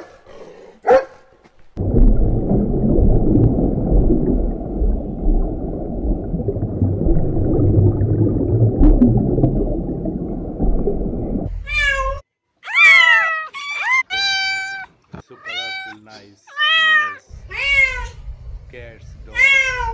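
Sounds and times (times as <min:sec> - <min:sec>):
long low rumble: 0:01.8 - 0:12.2.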